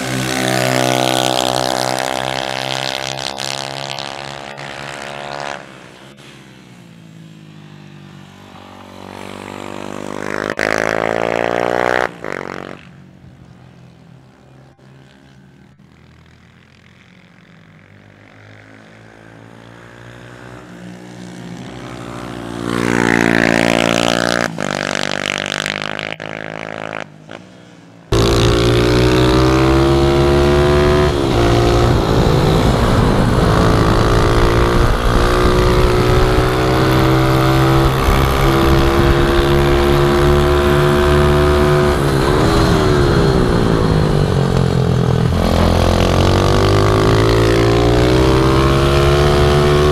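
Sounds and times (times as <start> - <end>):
small motorcycle engine passing: 0.0 - 49.9
engine high revving: 28.1 - 49.9.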